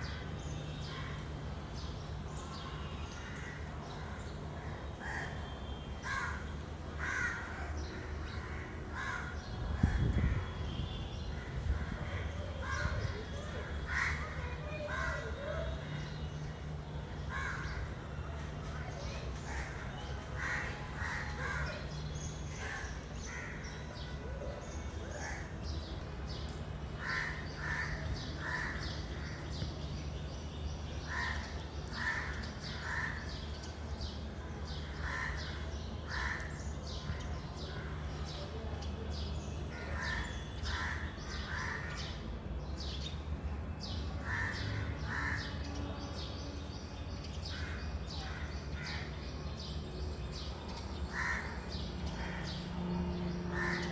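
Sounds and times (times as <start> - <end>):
crows cawing: 7.0 - 7.7, 27.0 - 29.4, 35.0 - 36.5, 51.1 - 52.6, 53.5 - 53.9.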